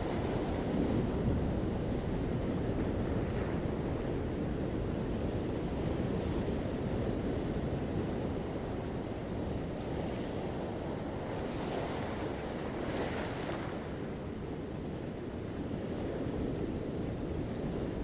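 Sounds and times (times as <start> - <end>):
waves breaking: 11.0 - 14.2.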